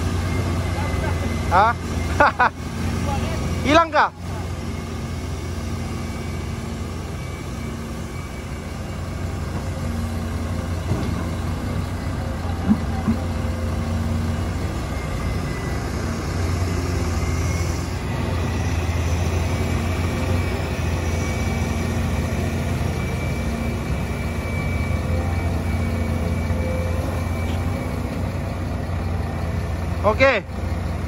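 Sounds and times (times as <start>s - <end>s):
diesel engine droning: 0.0s - 31.0s.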